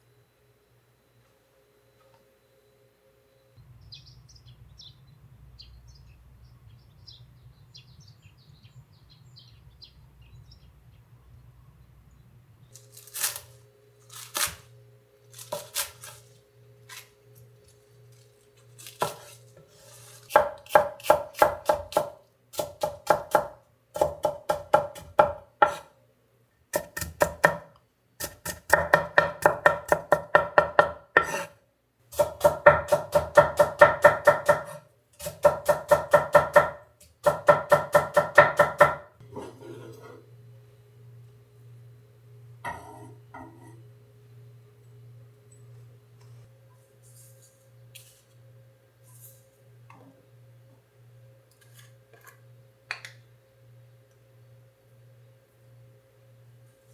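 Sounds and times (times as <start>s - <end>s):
knife chopping on cutting board: 15.4s - 16.2s, 18.8s - 19.4s, 20.2s - 25.9s, 26.8s - 31.5s, 32.1s - 40.2s.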